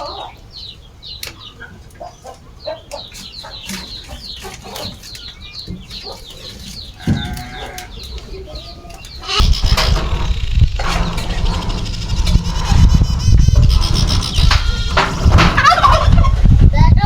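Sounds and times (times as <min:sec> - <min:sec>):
poultry peeping: 0:00.0 - 0:17.0
rumbling noise: 0:05.6 - 0:17.0.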